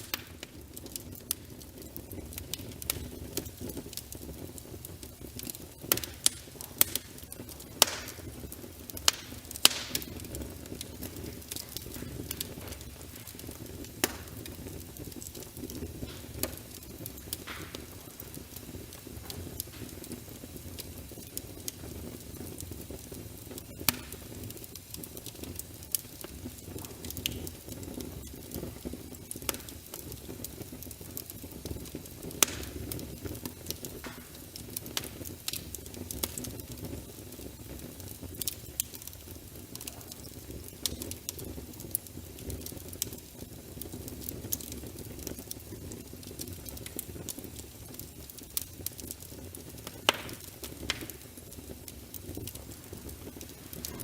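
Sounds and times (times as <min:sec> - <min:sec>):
low rumble of fire flames: 0:00.0 - 0:54.0
wood fire crackling and popping: 0:00.0 - 0:54.0.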